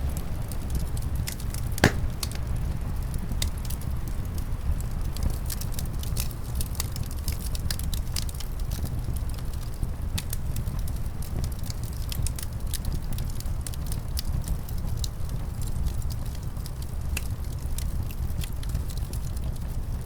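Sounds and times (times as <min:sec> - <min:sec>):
wood fire crackling: 0:00.0 - 0:12.4.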